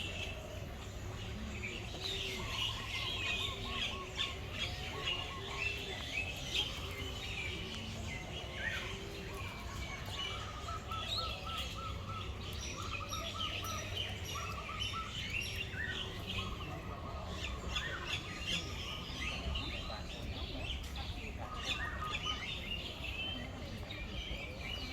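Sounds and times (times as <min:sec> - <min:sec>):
birds chirping chorus: 0:00.0 - 0:24.9.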